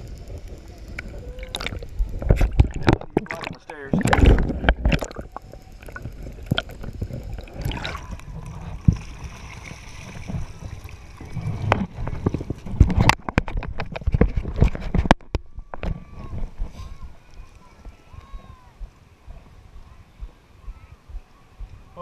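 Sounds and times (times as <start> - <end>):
water sloshing and gurgling: 0.9 - 16.7.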